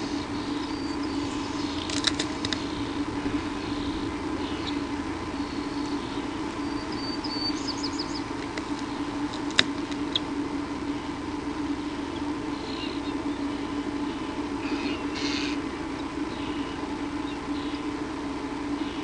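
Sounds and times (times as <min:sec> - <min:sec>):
low electrical hum: 0:00.0 - 0:19.0
high bird chirps: 0:03.7 - 0:08.3.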